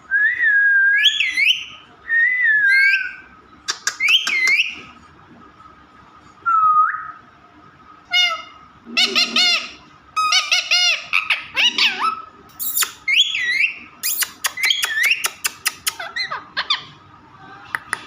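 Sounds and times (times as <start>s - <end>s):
parrot squawking and whistling: 0.9s - 4.9s, 8.1s - 16.9s
parrot clicks and chirps: 3.7s - 4.7s, 12.5s - 13.2s, 14.0s - 16.3s.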